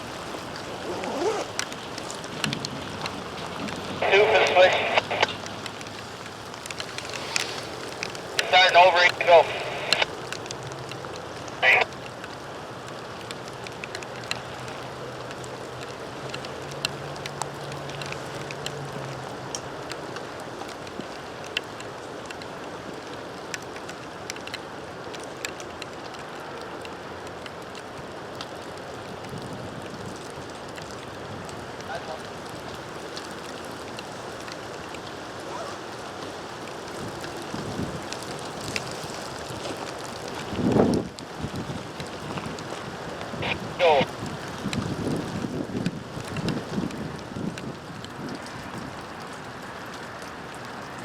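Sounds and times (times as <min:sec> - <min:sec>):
rain hiss: 0:00.0 - 0:51.0
raindrop ticks: 0:00.0 - 0:51.0
wind buffeting microphone: 0:36.8 - 0:39.6, 0:40.3 - 0:49.0.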